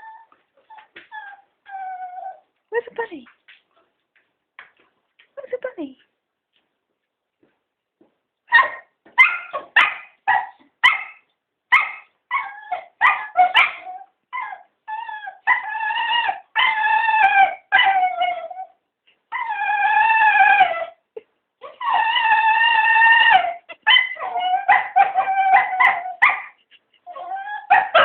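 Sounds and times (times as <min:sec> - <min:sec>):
dogs yipping and howling whines: 0:00.0 - 0:02.5, 0:08.5 - 0:21.0, 0:21.6 - 0:28.0.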